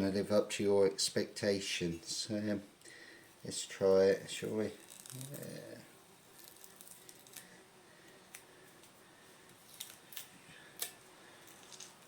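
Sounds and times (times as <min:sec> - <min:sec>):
masking tape being peeled: 0:04.7 - 0:07.5, 0:09.5 - 0:12.0.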